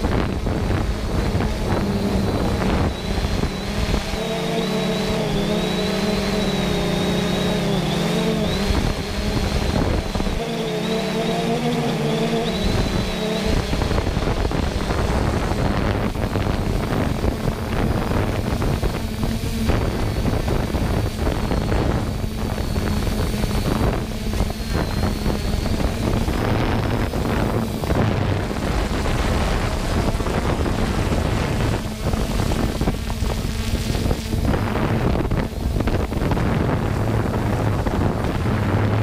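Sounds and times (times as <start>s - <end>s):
drone motors buzzing: 0.0s - 39.0s
wind rumble on microphone: 0.0s - 39.0s.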